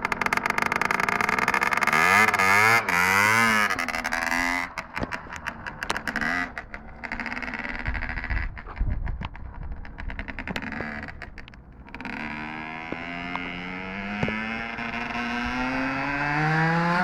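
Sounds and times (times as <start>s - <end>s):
two-stroke engine revving: 0.0s - 17.0s
engine rough idle: 3.6s - 12.3s.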